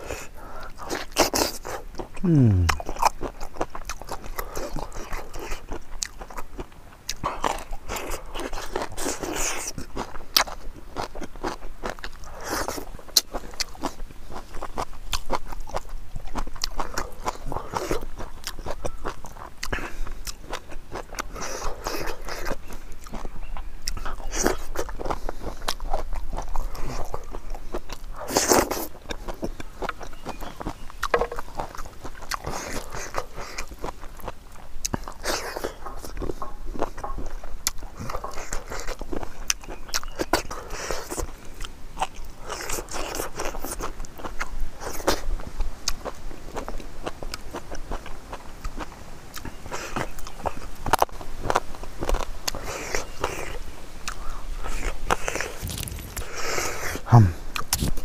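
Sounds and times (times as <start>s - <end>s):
wet chewing and crunching: 0.0s - 58.0s
sharp mouth clicks: 2.2s - 3.2s.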